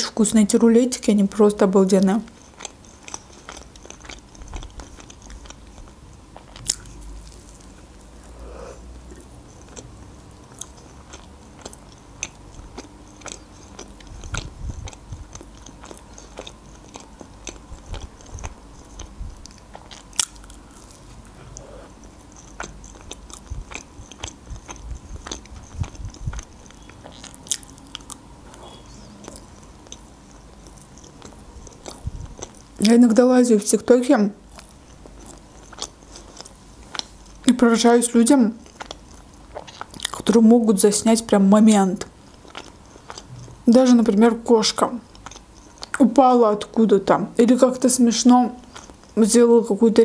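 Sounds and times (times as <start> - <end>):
close chewing: 2.0 - 33.0, 34.4 - 37.6, 38.6 - 40.4, 41.8 - 43.6, 44.7 - 46.0, 48.6 - 49.2
faint low rumble: 3.5 - 46.8.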